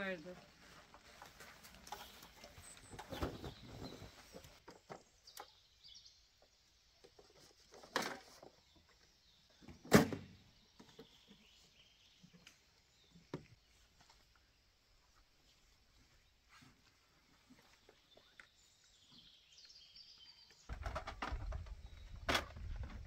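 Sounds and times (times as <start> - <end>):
camping gear knocks and thumps: 0.9 - 5.6, 7.1 - 8.9, 20.7 - 23.0.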